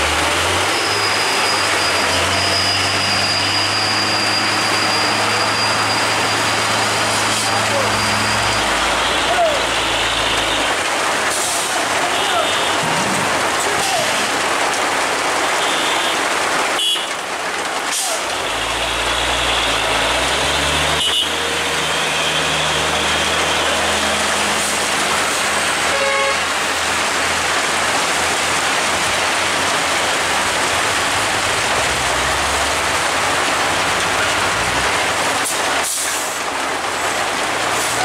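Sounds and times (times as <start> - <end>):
rain hiss: 0.0 - 38.0
truck diesel engine running: 17.9 - 38.0
horn toots: 18.0 - 26.5.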